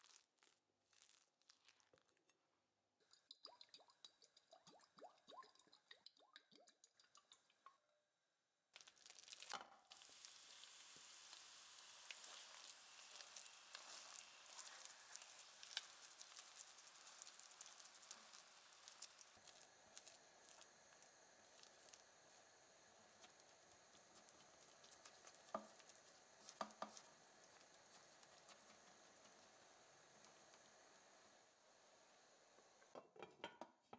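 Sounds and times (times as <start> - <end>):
batter sizzling in oil: 0.0 - 2.2, 8.8 - 32.9.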